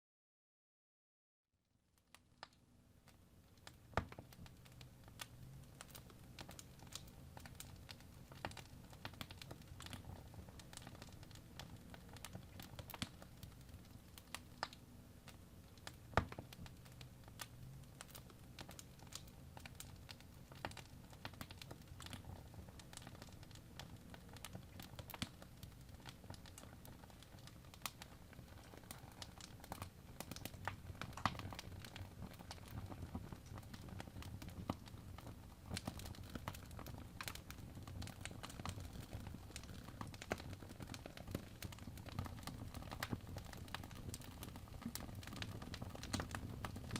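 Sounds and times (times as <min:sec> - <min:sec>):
wood fire crackling: 0:02.0 - 0:46.9.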